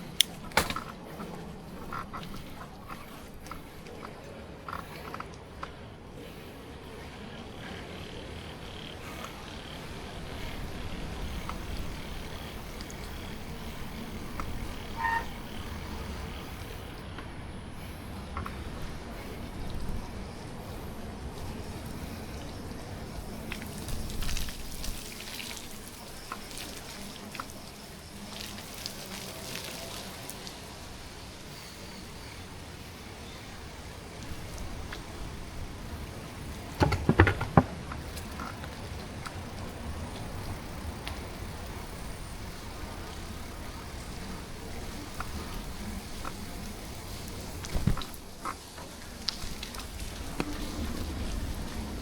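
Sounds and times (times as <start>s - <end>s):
bicycle road noise: 0.0s - 52.0s
loud knocks: 36.8s - 37.9s.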